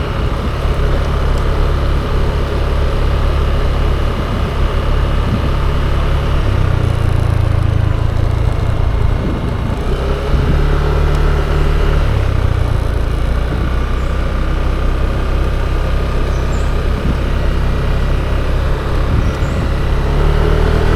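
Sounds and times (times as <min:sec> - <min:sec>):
scooter engine: 0:00.0 - 0:20.9.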